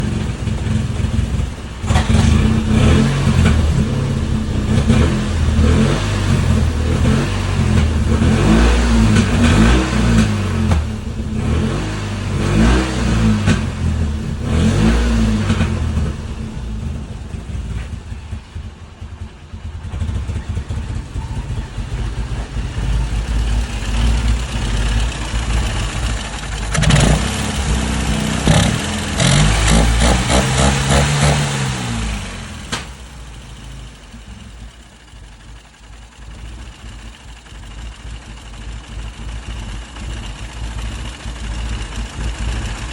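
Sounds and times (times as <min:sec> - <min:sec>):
small car engine revving: 0:00.0 - 0:17.9, 0:19.9 - 0:42.9
engine uneven idle: 0:00.0 - 0:42.9
exhaust pops: 0:00.0 - 0:42.9.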